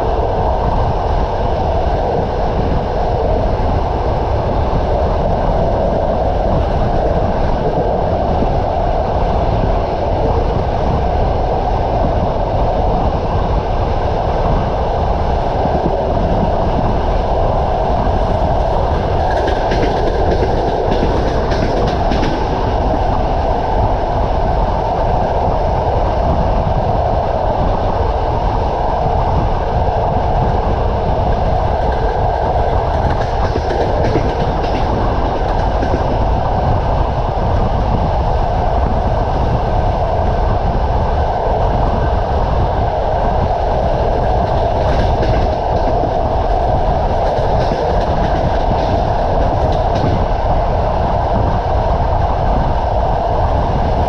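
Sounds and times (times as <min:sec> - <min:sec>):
train rumble: 0:00.0 - 0:54.0
train wheels clacking: 0:18.2 - 0:23.4, 0:31.8 - 0:36.8, 0:44.1 - 0:50.4.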